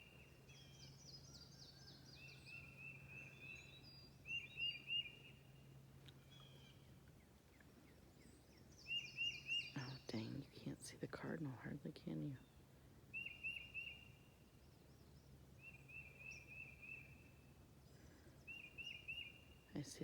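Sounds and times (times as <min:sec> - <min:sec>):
bird singing whistled notes: 0:00.0 - 0:05.4, 0:08.7 - 0:09.8, 0:13.1 - 0:14.2, 0:15.6 - 0:17.4, 0:18.5 - 0:19.5
faint low hum: 0:00.0 - 0:20.0.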